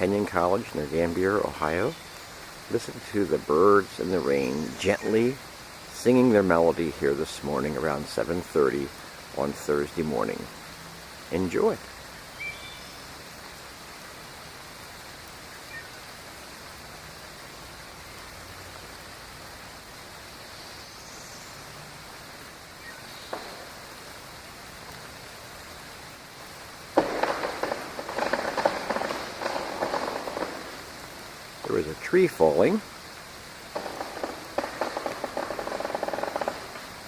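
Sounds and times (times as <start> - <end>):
rain falling: 0.0 - 37.0
faint bird chirps: 1.8 - 2.4, 12.0 - 13.3, 15.4 - 16.1, 22.8 - 23.6
tree falling crackling and crashing: 22.8 - 37.0.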